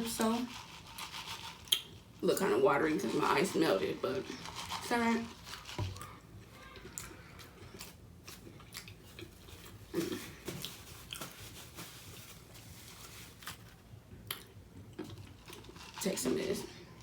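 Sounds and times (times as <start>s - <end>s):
chewing with wet clicks and smacks: 6.8s - 9.4s, 14.2s - 15.7s.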